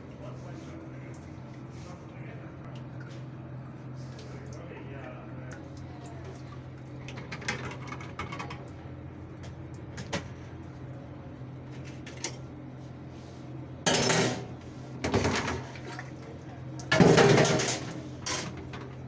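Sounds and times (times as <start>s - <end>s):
dishwasher humming: 0.0s - 12.6s, 13.8s - 19.0s
dishwasher clicks and knocks: 16.9s - 18.8s.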